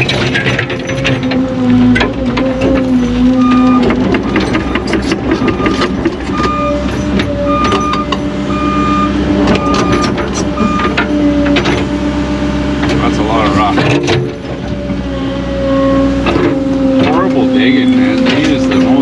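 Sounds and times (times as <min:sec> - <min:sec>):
machine clanks and knocks: 0:00.0 - 0:08.2, 0:09.4 - 0:11.9, 0:12.8 - 0:14.9, 0:16.2 - 0:17.4, 0:18.2 - 0:19.0
diesel engine running: 0:00.0 - 0:19.0
backup alarm beeping: 0:03.4 - 0:03.9, 0:04.6 - 0:11.0.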